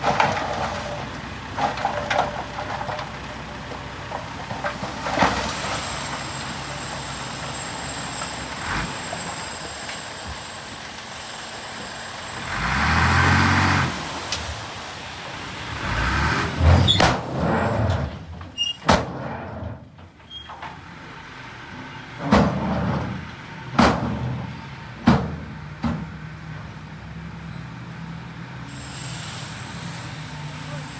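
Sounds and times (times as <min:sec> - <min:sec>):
heavy vehicle engine running: 0:00.0 - 0:30.9
sharp knocks and clanks: 0:23.8 - 0:26.2.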